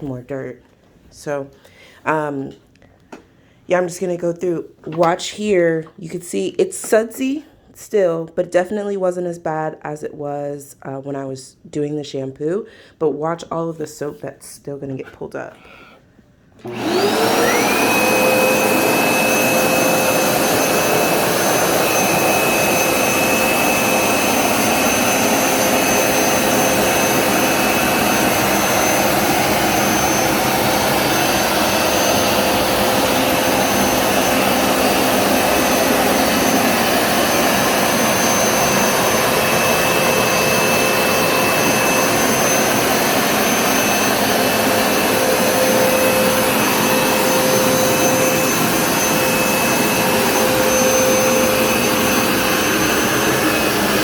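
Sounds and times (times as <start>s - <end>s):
carpet cleaner motor whining: 16.6s - 54.0s.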